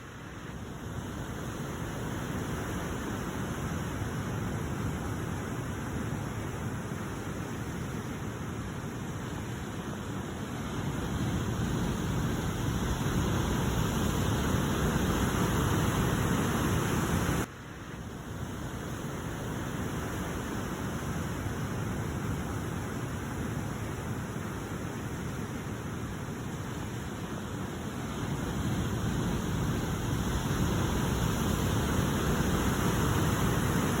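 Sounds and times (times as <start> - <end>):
sea waves washing on shore: 0.0 - 34.0
ocean waves breaking: 26.8 - 34.0.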